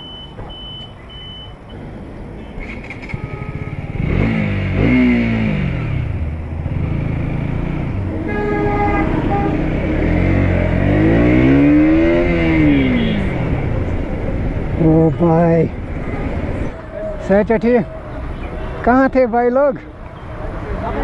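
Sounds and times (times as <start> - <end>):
horn sounding: 2.6 - 4.3, 8.2 - 13.5
motorcycle engine accelerating: 2.6 - 14.8.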